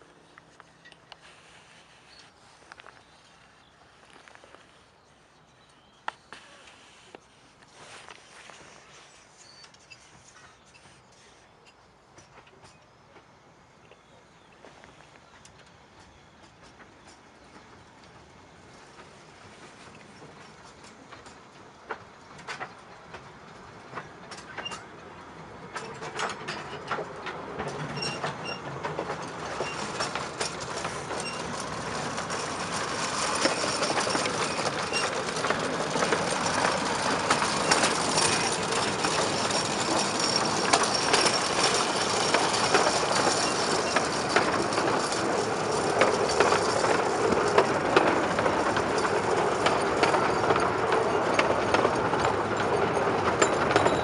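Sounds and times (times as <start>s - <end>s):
wheels clicking over rail joints: 0.0s - 54.0s
miniature train running: 14.9s - 54.0s.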